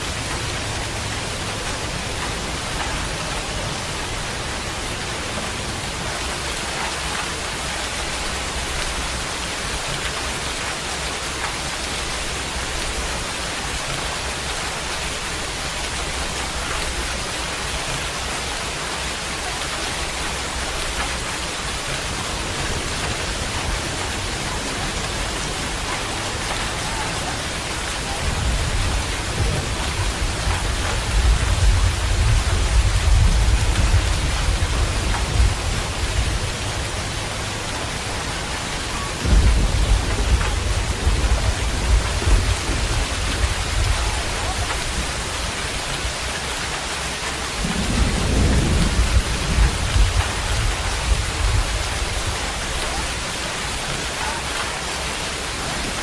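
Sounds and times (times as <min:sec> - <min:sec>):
steady rain falling: 0:00.0 - 0:56.0
deep rumble of thunder: 0:19.9 - 0:45.7, 0:47.5 - 0:53.2.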